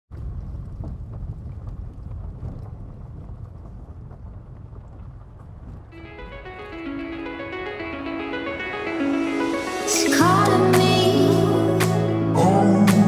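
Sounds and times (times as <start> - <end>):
low uneven rumble: 0.1 - 7.0
music with steady notes: 6.0 - 13.0.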